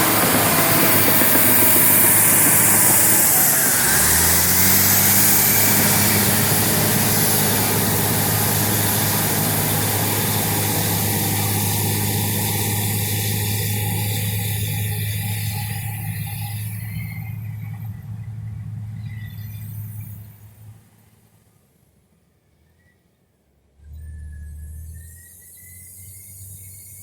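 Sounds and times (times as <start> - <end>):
bulldozer diesel engine running: 0.0 - 21.2.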